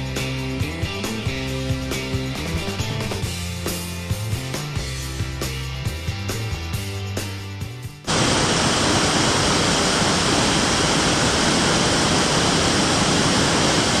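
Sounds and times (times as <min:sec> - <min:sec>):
background music: 0:00.0 - 0:08.1
water rushing from a cascade: 0:08.1 - 0:14.0.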